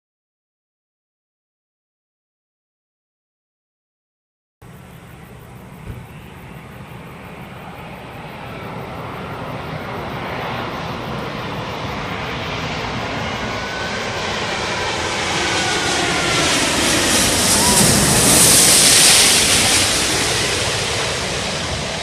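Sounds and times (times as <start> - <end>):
faint engine whine: 4.6 - 22.0
jet engines rushing: 4.6 - 22.0.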